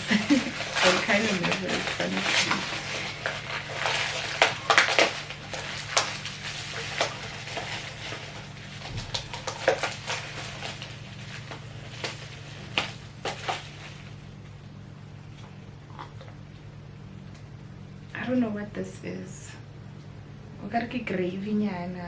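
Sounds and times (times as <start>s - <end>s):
plastic food containers crinkling: 0.0s - 14.6s.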